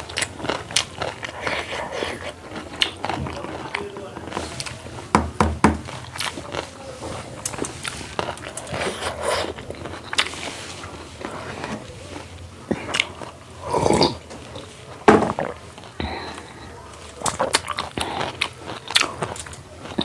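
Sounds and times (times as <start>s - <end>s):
food crunching: 0.0s - 20.0s
person chewing food: 0.0s - 20.0s
wet mouth clicks: 0.1s - 3.0s.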